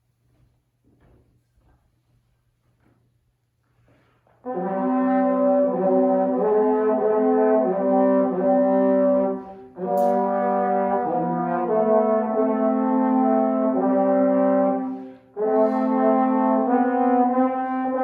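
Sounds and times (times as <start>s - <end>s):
brass sustained chords: 4.5s - 18.0s.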